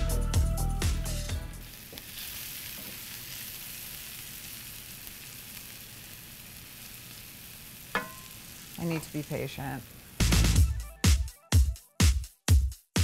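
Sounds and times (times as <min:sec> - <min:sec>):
background music with steady beat: 0:00.0 - 0:01.6, 0:10.2 - 0:13.0
shallots sizzling in hot oil: 0:01.4 - 0:10.7.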